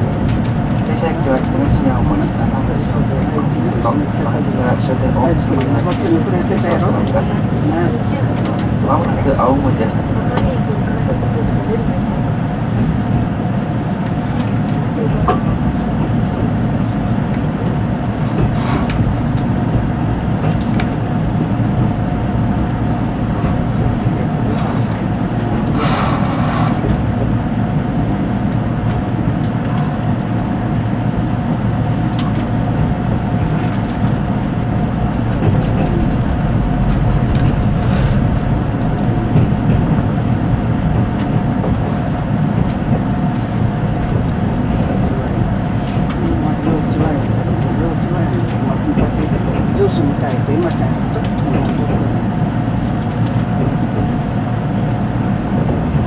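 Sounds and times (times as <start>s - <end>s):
train cabin rumble: 0.0s - 56.0s
wheels clicking on rail joints: 31.9s - 56.0s.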